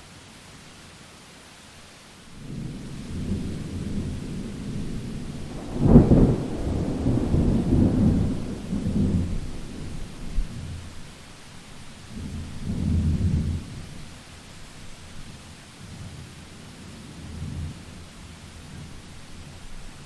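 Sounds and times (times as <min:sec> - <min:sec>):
steady rain: 0:00.0 - 0:20.0
thunder rumbling: 0:02.4 - 0:13.9.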